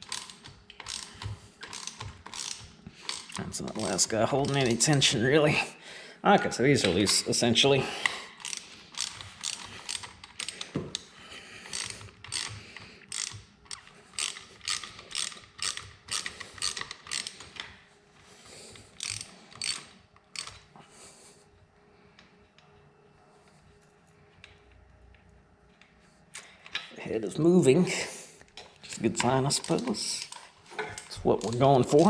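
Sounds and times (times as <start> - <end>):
hand ratchet clicking: 0.0 - 5.1, 8.0 - 17.7, 18.9 - 20.6, 28.9 - 32.0.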